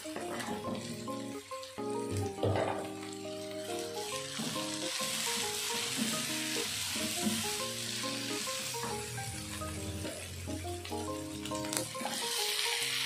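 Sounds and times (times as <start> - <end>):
soft background music: 0.0 - 13.0
vegetables sizzling in hot oil: 0.0 - 13.0.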